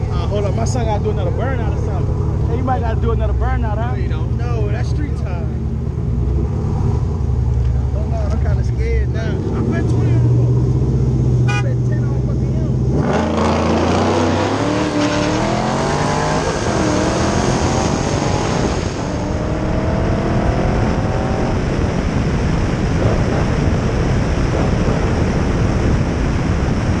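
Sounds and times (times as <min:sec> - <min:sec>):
car engine accelerating: 0:00.0 - 0:27.0
wind rush on microphone: 0:14.2 - 0:27.0.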